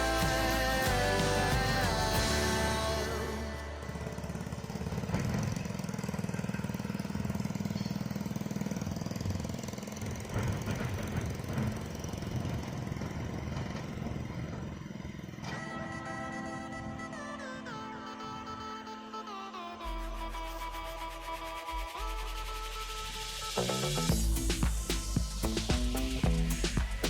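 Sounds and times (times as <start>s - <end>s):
music: 0.0s - 3.9s, 15.5s - 27.0s.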